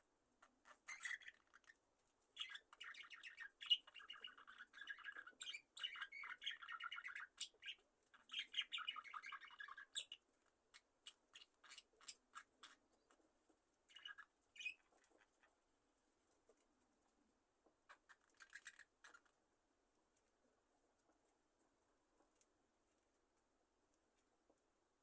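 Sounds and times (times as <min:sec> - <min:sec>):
budgerigars chirping: 0:00.4 - 0:01.8, 0:02.4 - 0:12.8, 0:13.9 - 0:15.4, 0:17.9 - 0:19.3.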